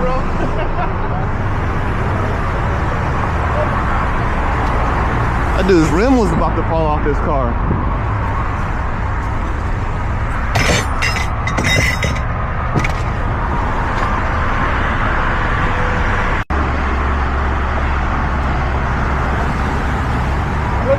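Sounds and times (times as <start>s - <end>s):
road traffic rumbling: 0.0s - 20.9s
short clinks: 10.5s - 12.3s.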